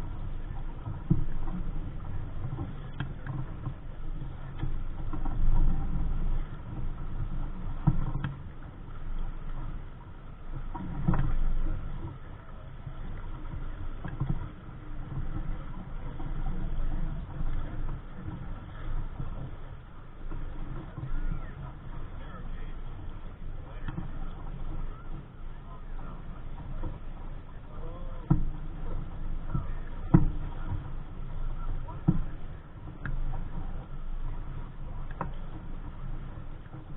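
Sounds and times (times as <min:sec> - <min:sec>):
waves splashing against hull: 0:00.0 - 0:36.9
wind rumbling on microphone: 0:00.0 - 0:36.9.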